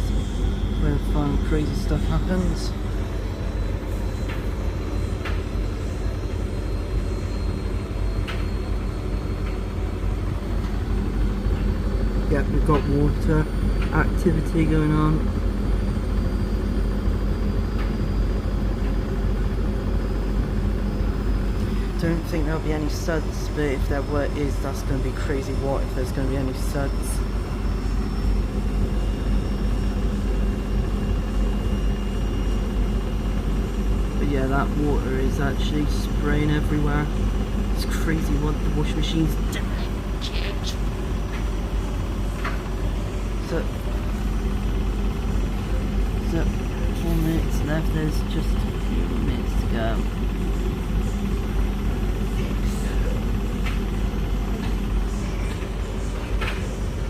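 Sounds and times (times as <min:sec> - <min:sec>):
washing machine spinning: 0:00.0 - 0:57.0.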